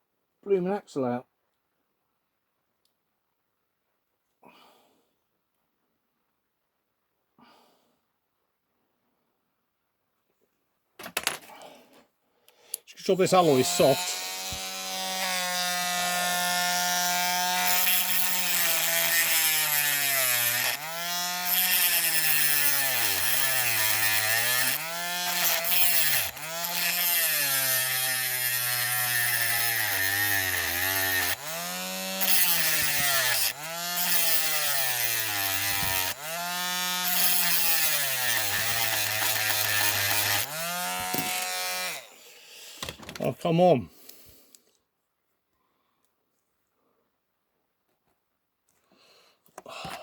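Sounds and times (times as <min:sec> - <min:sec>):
power tool motor whining: 0:13.4 - 0:43.0.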